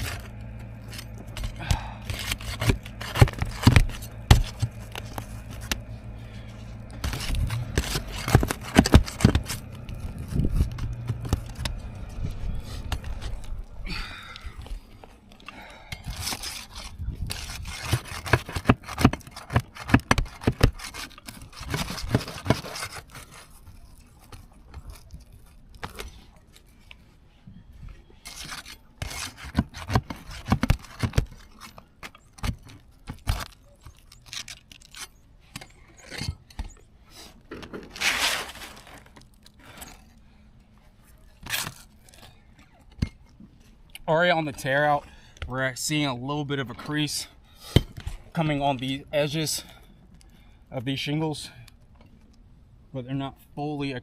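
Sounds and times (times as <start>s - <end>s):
roof shingles being torn out: 0.0s - 13.8s, 16.0s - 26.8s, 28.2s - 40.4s, 41.2s - 43.3s.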